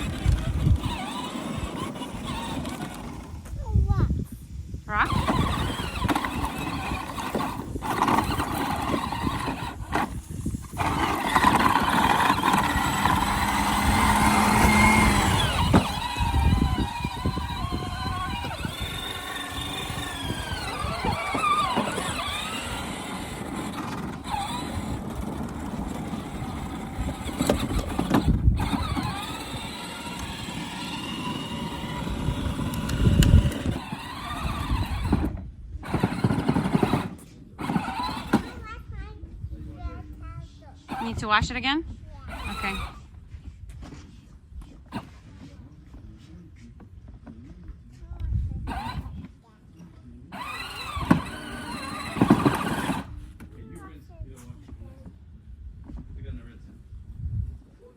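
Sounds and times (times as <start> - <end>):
electric toy tractor motor whining: 0.0 - 3.6, 4.9 - 38.7, 40.9 - 43.1, 48.6 - 49.2, 50.3 - 53.4.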